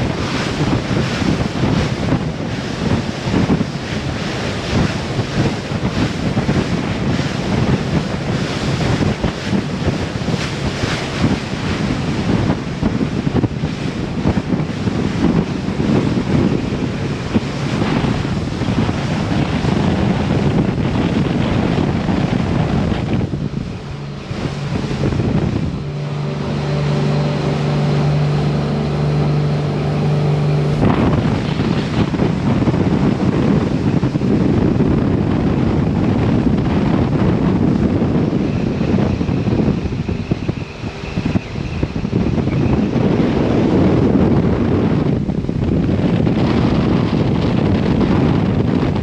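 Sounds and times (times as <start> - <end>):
boat engine drone: 0.0 - 49.0
water rushing past boat: 0.0 - 49.0
wind buffeting microphone: 0.0 - 49.0.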